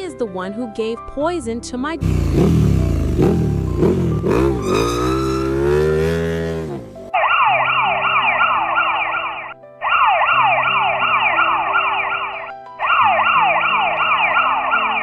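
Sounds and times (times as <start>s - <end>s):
soft background music: 0.0s - 15.0s
siren in fast yelp: 7.2s - 15.0s.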